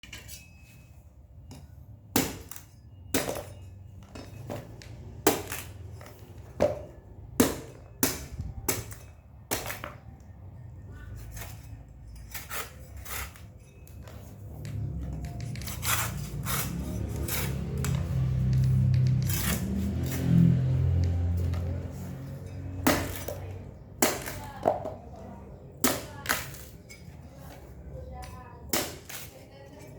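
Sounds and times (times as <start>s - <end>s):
blade chopping coconut husk: 2.2s - 3.6s, 4.5s - 9.9s, 15.6s - 25.0s, 25.8s - 26.8s, 28.7s - 29.3s.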